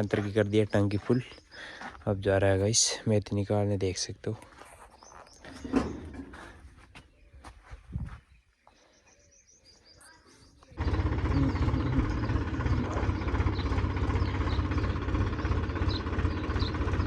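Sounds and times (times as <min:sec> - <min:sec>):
birds chirping faintly: 0:00.0 - 0:17.0
tractor diesel engine running: 0:10.8 - 0:17.0.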